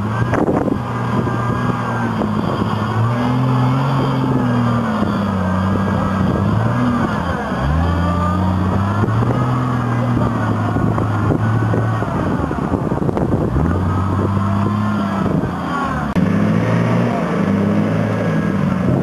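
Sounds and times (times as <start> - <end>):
engine revving under load: 0.0 - 19.0.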